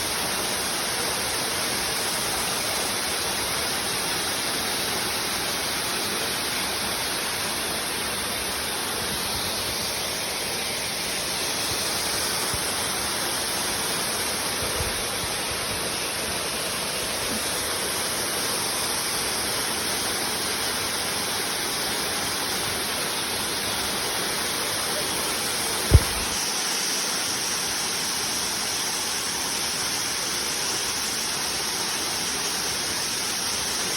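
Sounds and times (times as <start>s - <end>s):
waterfall rushing: 0.0s - 33.9s
faint knock: 25.9s - 26.4s
sharp thump: 25.9s - 26.4s.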